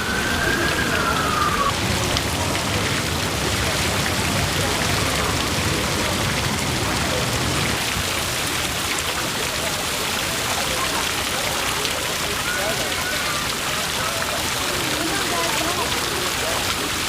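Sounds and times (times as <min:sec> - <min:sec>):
steady rushing noise: 0:00.0 - 0:08.2.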